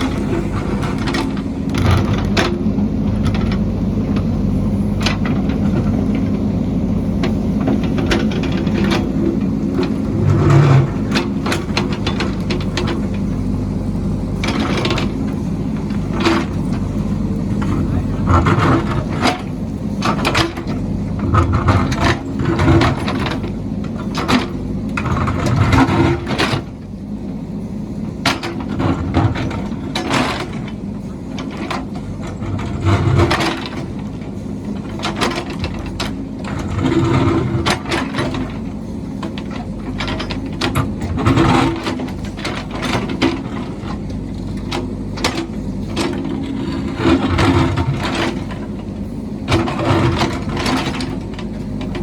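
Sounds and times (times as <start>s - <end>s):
construction machine engine surging: 0.0s - 52.0s
metallic clanks and knocks: 28.2s - 52.0s.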